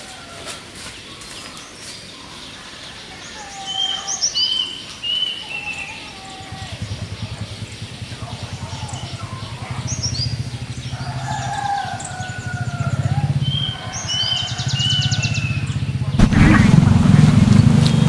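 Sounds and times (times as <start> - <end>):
small birds chirping: 0.0 - 18.0
low pulsing hum: 16.1 - 18.0.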